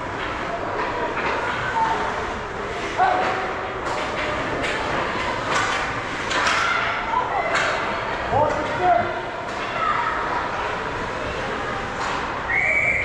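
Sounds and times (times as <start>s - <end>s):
hockey sticks and puck clacking: 0.2s - 1.8s, 2.9s - 8.9s, 12.0s - 12.4s.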